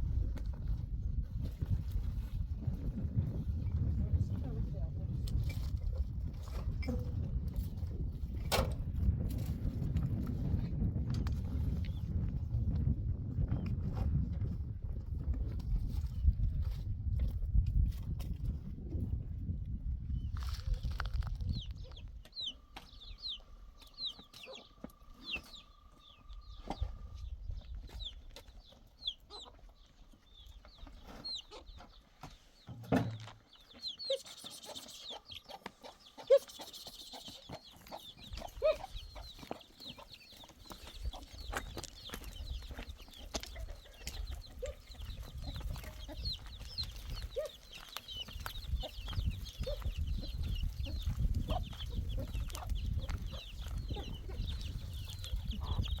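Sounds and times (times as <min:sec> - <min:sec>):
chicks peeping: 0:20.1 - 0:32.7, 0:33.4 - 0:56.0
hen calling: 0:33.8 - 0:40.2.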